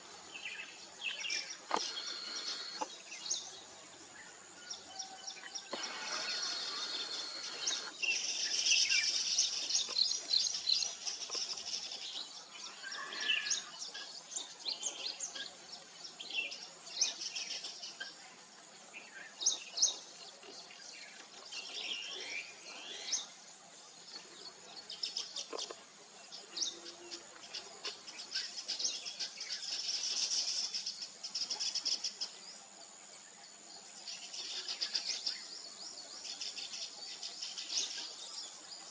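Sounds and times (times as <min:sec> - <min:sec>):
birds chirping: 0:00.0 - 0:18.2
dense buzzy bird chatter: 0:00.0 - 0:38.9.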